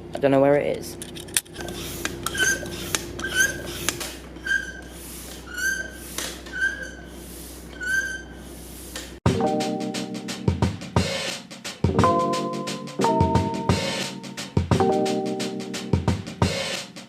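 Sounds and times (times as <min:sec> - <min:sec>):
foot pump squeaking: 0:01.0 - 0:09.2.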